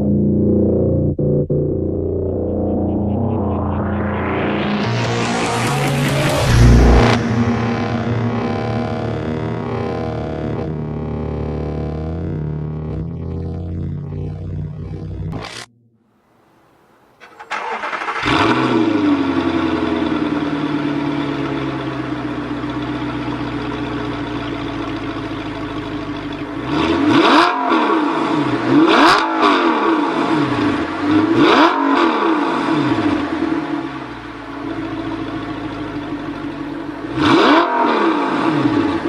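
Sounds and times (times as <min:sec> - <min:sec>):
car engine starting and revving: 0:00.0 - 0:15.7, 0:17.2 - 0:39.0.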